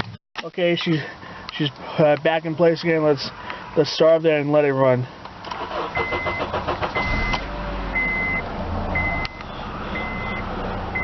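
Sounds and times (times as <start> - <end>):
car engine cranking and running: 5.4 - 10.4
car warning chime beeping: 5.7 - 11.0.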